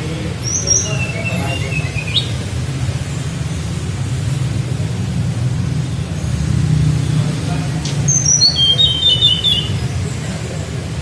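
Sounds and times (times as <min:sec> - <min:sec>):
bird whistling and chirping: 0:00.4 - 0:02.4, 0:08.0 - 0:09.8.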